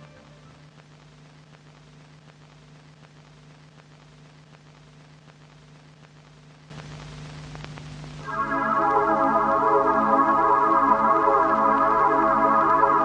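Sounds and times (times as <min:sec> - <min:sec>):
light crackles: 0:00.0 - 0:08.3
faint steady hiss: 0:00.0 - 0:13.0
low hum: 0:06.7 - 0:13.0.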